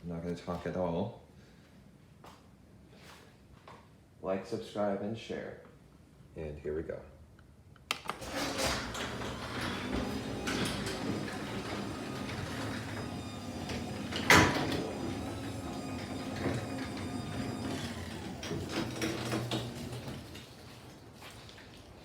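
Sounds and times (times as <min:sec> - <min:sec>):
garage door opener running: 0:08.1 - 0:21.1
loud door clunk: 0:08.2 - 0:20.4.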